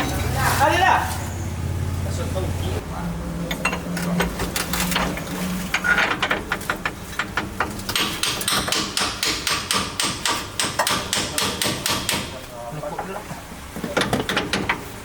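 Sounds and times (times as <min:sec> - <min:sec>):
hammer striking: 0:05.7 - 0:12.4.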